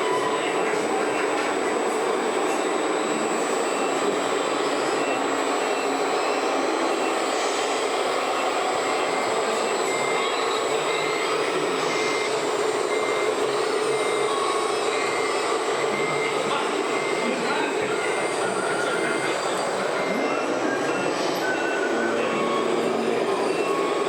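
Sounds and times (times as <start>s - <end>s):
reversing beeper beeps: 0.0s - 24.0s.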